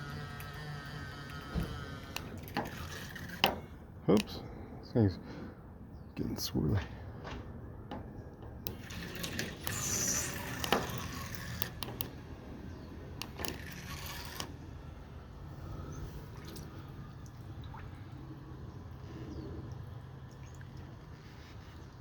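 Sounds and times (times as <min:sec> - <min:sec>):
sharp clicks and knocks: 0:01.3 - 0:04.3, 0:07.2 - 0:12.2, 0:13.2 - 0:14.6
water swirling and dripping: 0:08.5 - 0:12.3, 0:15.2 - 0:22.0.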